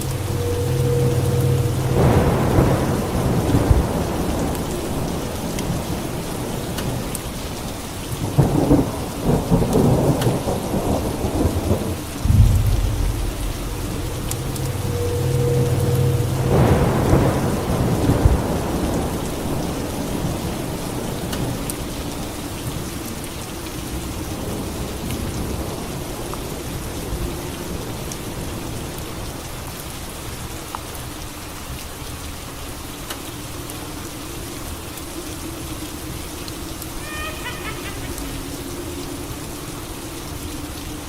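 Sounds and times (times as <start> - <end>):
thunderclap: 0.0 - 6.5, 8.3 - 20.4
heavy rain: 0.0 - 41.0.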